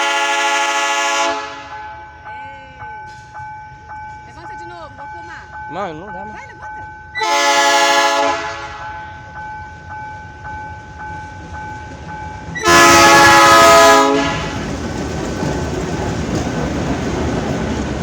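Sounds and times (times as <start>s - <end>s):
locomotive air horn blasts: 0.0s - 1.8s, 7.2s - 9.0s, 12.6s - 14.6s
train rumbling past: 0.0s - 18.0s.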